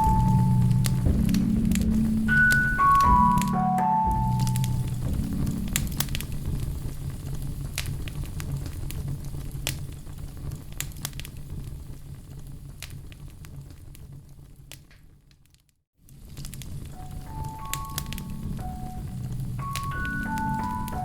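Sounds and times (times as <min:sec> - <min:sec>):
fire crackling and popping: 0:00.0 - 0:03.6, 0:04.2 - 0:21.0
low rumble: 0:00.0 - 0:10.7, 0:18.1 - 0:21.0.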